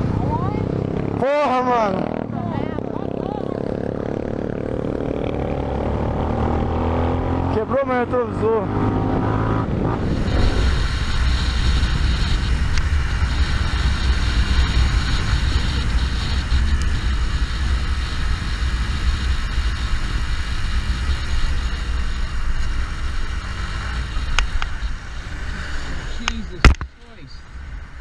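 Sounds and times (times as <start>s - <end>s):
motorcycle engine on road: 0.0s - 28.0s
wind on microphone: 8.8s - 26.8s.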